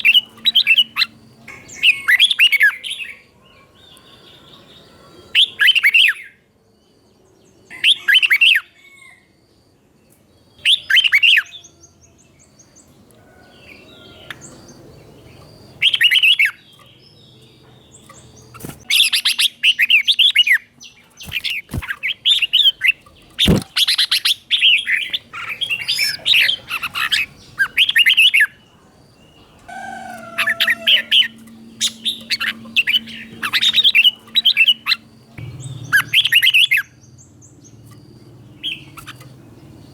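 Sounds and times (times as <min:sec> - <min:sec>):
bird whistled song: 0:05.3 - 0:06.4, 0:10.6 - 0:11.8, 0:15.4 - 0:16.8, 0:18.4 - 0:28.6, 0:29.7 - 0:37.0.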